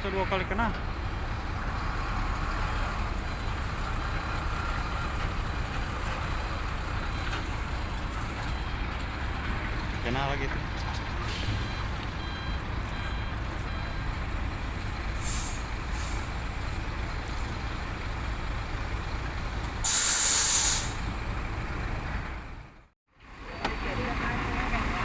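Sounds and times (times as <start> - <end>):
diesel truck engine running: 0.0 - 25.0
air brake hiss: 15.2 - 16.3, 19.8 - 21.0
short air hisses: 15.2 - 16.3, 19.8 - 21.1.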